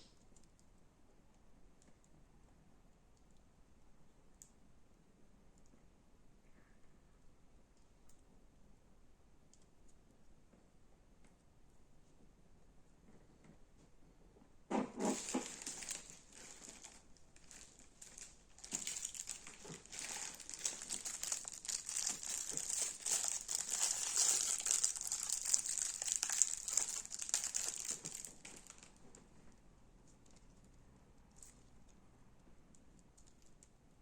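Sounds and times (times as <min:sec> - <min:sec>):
slime crackling and popping: 0:15.0 - 0:29.0.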